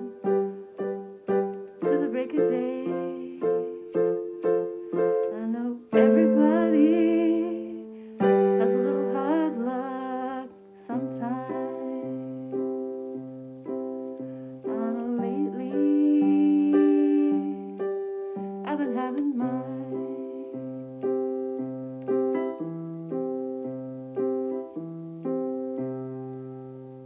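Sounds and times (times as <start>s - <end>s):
keyboard chords: 0.0s - 27.0s.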